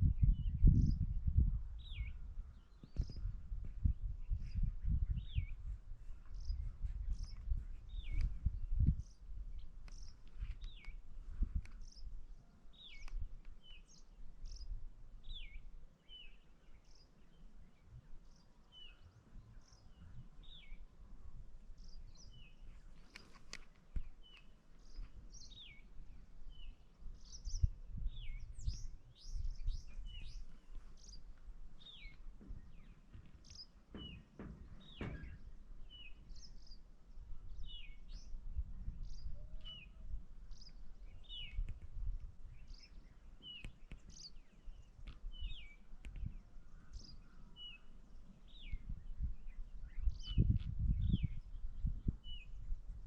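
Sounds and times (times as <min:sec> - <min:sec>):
wild birds chirping: 0:00.1 - 0:52.9
knocks: 0:33.9 - 0:35.4.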